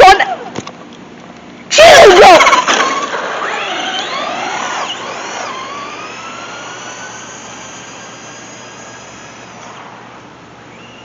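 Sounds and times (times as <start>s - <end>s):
rc car motor whining: 2.1s - 10.1s.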